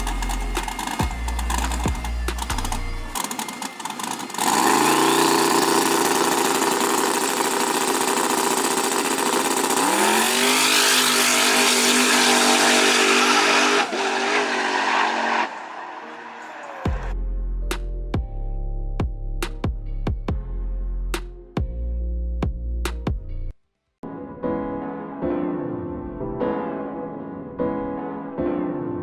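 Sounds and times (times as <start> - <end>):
car engine at full throttle: 0.0 - 17.2.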